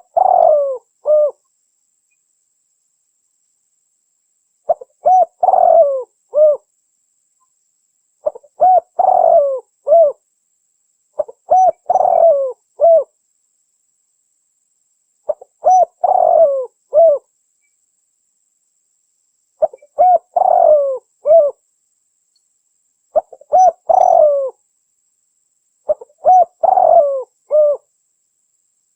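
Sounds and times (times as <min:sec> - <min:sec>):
dove cooing: 0:00.0 - 0:01.4, 0:04.7 - 0:06.7, 0:08.2 - 0:10.2, 0:11.2 - 0:13.1, 0:15.3 - 0:17.3, 0:19.6 - 0:21.6, 0:23.2 - 0:24.6, 0:25.9 - 0:27.9.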